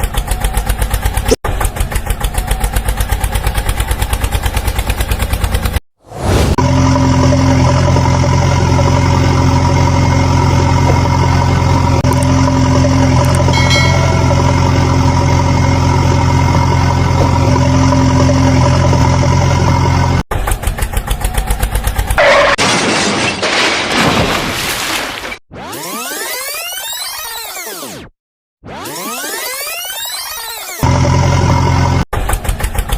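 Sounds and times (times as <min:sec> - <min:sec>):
pulsing engine: 0:00.0 - 0:22.2, 0:28.8 - 0:32.9
tractor engine idling: 0:08.3 - 0:22.1.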